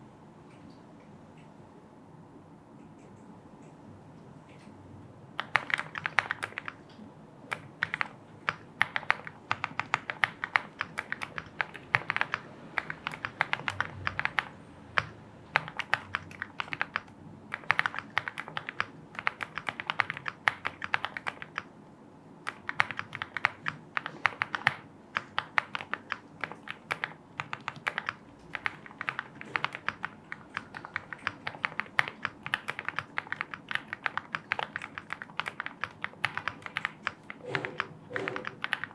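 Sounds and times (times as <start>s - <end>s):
mechanical keyboard typing: 5.3s - 21.7s, 22.4s - 38.9s.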